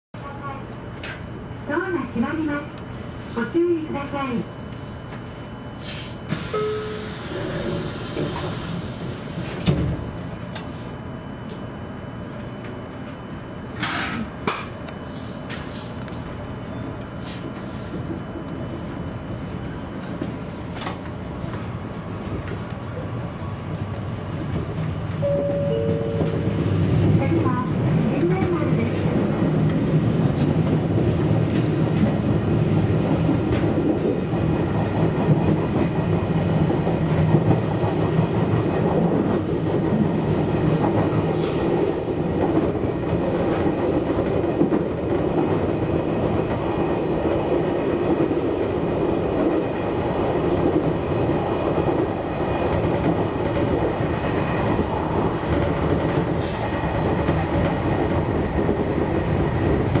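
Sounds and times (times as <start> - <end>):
train wheels rumbling on rail: 0.2 - 60.0
faint high tone: 25.2 - 26.6.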